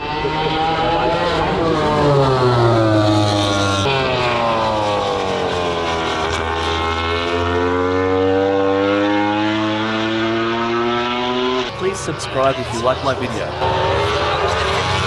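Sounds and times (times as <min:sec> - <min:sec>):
racing motorcycle engines revving: 0:00.0 - 0:15.0.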